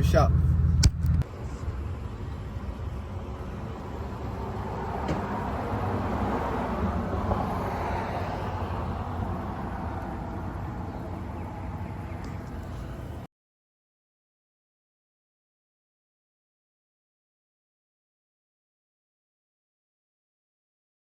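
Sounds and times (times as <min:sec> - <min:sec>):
vehicle engine and tyre rumble: 0:00.0 - 0:13.3.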